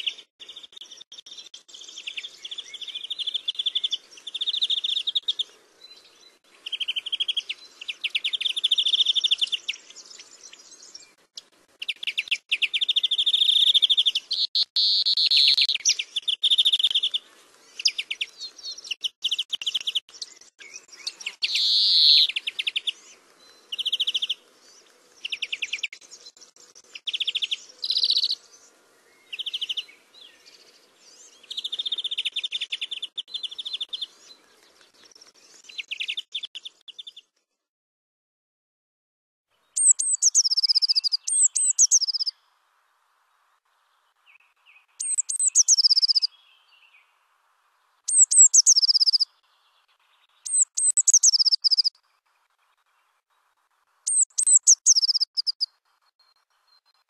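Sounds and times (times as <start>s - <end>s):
bird trilling chirps: 11.8s - 17.2s, 17.8s - 24.4s, 27.0s - 28.4s, 39.8s - 42.4s, 45.0s - 46.9s, 48.1s - 49.3s, 50.4s - 51.9s, 54.1s - 55.8s.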